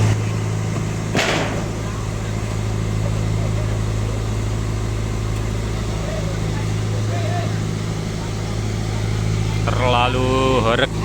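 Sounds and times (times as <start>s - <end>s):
sound system low drone: 0.0s - 11.0s
hissing crash: 1.0s - 3.1s.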